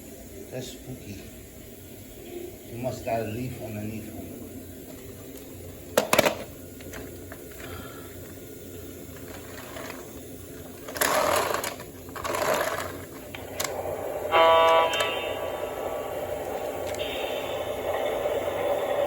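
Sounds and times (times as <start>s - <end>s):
model train humming on track: 0.0s - 19.0s
rustling clattering bursts: 9.1s - 13.9s
toy train horn toot: 13.6s - 18.3s.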